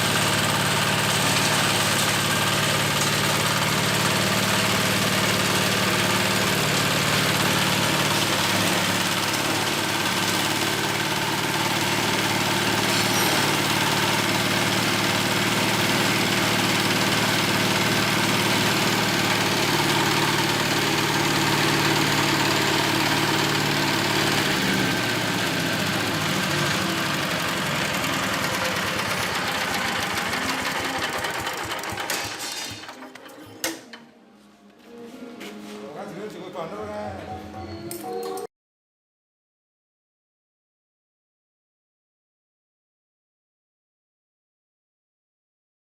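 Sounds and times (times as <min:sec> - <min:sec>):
chopper machine engine running: 0:00.0 - 0:33.5.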